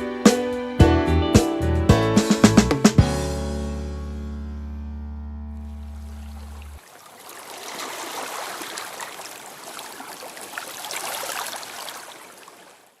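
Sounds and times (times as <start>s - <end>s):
water trickling and splashing: 5.6s - 13.0s.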